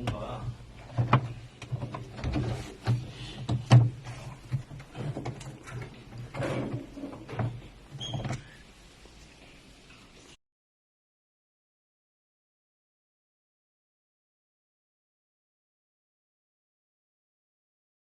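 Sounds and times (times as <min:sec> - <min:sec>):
irregular knocks and clicks: 0:00.8 - 0:07.6.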